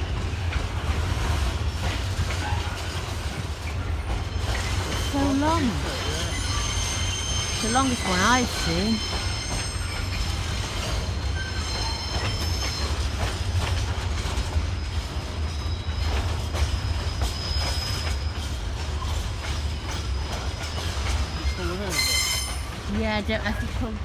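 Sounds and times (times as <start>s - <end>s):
train wagons rumbling past: 0.0s - 24.0s
high-pitched wheel squeal: 5.4s - 10.3s, 21.5s - 22.7s.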